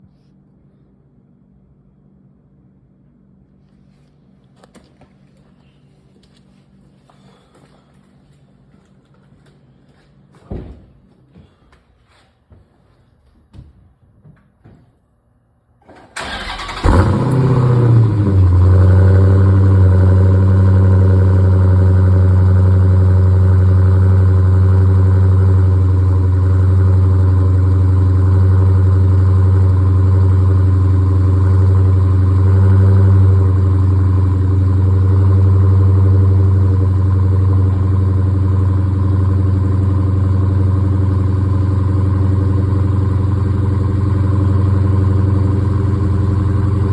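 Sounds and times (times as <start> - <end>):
starter motor cranking: 16.0 - 18.0
car engine idling: 16.2 - 46.9.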